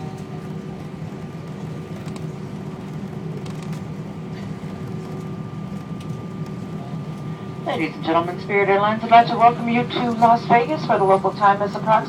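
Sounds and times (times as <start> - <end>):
aircraft cabin engine hum: 0.0 - 12.0
faint steady tones: 4.0 - 12.0.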